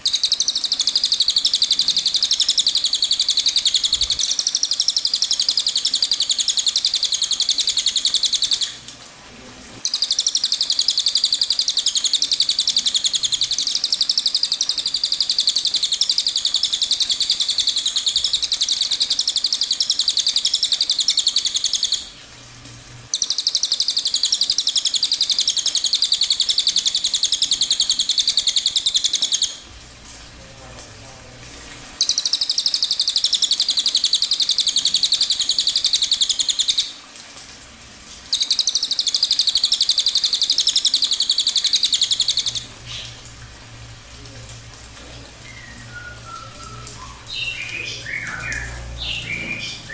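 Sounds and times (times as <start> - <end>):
songbird trilling: 0.0 - 8.8, 9.8 - 22.1, 23.1 - 29.6, 32.0 - 36.9, 38.3 - 43.2, 45.4 - 49.9.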